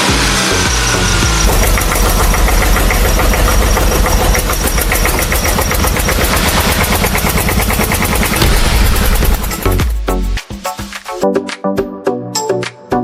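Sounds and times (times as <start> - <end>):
small engine chugging: 0.0 - 9.9.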